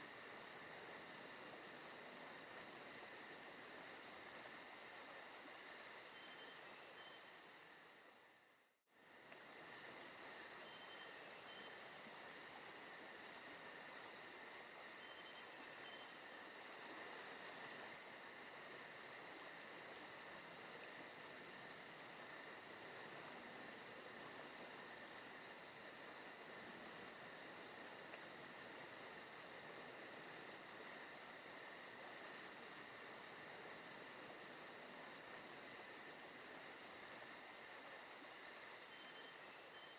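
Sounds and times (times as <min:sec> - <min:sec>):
crickets and insects trilling: 0:00.1 - 0:39.9.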